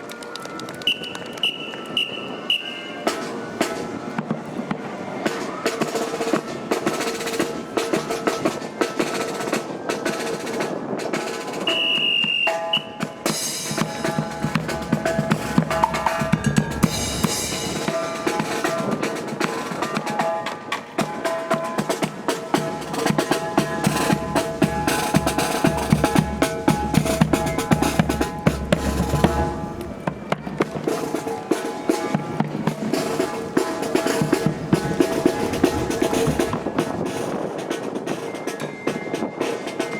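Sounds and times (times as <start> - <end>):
high whistle blast: 0.8 - 3.1, 11.6 - 13.3
marching drum cadence: 0.8 - 39.9
wind rumble on microphone: 34.4 - 38.3.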